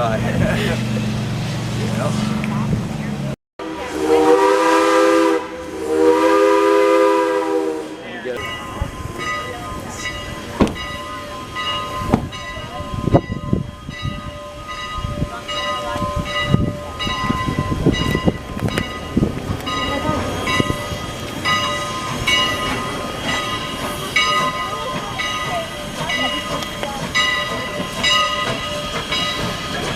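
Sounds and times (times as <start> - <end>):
train rolling past: 0.0 - 29.9
bell ringing: 8.4 - 29.9.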